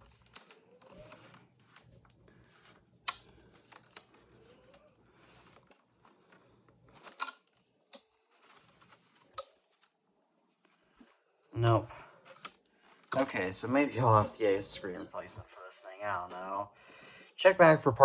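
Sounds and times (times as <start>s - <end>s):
plastic clicks: 0.0s - 9.6s
plastic parts rubbing: 0.0s - 11.5s, 12.2s - 16.5s.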